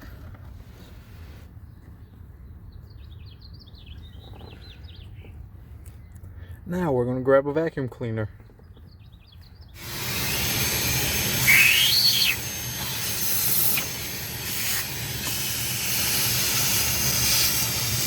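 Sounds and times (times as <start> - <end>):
vacuum cleaner running: 9.8 - 18.0
brief whistle: 11.4 - 12.4.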